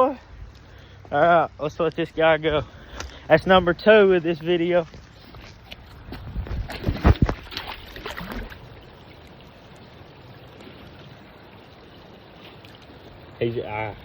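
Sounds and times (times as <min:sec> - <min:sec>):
stream rushing: 0:00.0 - 0:14.0
fish splashing in water: 0:05.5 - 0:13.2.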